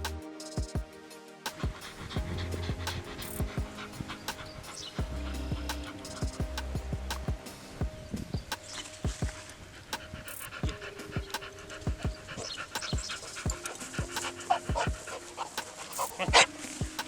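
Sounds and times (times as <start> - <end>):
music with deep bass beat: 0.0 - 9.4, 10.6 - 17.0
puppy panting: 10.0 - 16.5.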